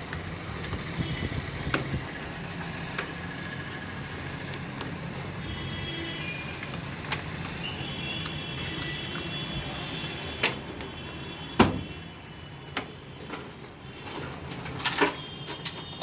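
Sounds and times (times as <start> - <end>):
sharp clicks and knocks: 1.5 - 2.2.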